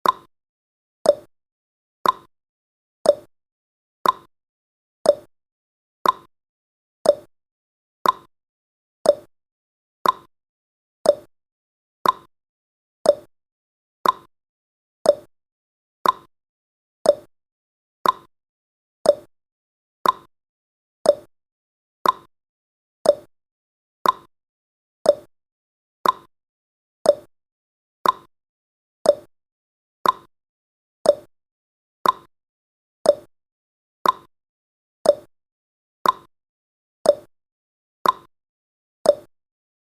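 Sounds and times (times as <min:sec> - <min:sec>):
clock ticking: 0:02.0 - 0:02.3, 0:04.0 - 0:04.3, 0:06.0 - 0:06.3, 0:08.0 - 0:08.3, 0:10.0 - 0:10.3, 0:12.0 - 0:12.3, 0:14.0 - 0:14.3, 0:18.0 - 0:18.3, 0:20.0 - 0:20.3, 0:22.0 - 0:22.3, 0:24.0 - 0:24.3, 0:26.0 - 0:26.3, 0:28.0 - 0:28.3, 0:29.1 - 0:29.3, 0:30.0 - 0:30.3, 0:31.1 - 0:31.3, 0:32.0 - 0:32.3, 0:33.1 - 0:33.3, 0:34.0 - 0:34.3, 0:35.1 - 0:35.3, 0:36.0 - 0:36.3, 0:38.0 - 0:38.3, 0:39.1 - 0:39.3.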